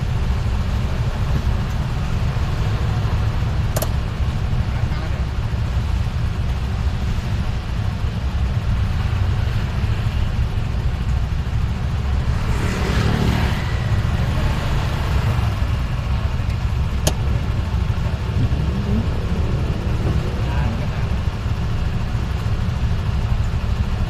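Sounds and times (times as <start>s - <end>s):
road noise rumble: 0.0s - 24.0s
vehicle passing by: 18.1s - 21.5s.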